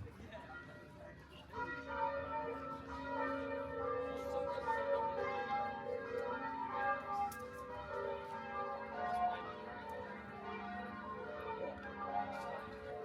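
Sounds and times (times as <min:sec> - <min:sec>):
church bells ringing: 0:00.5 - 0:13.0.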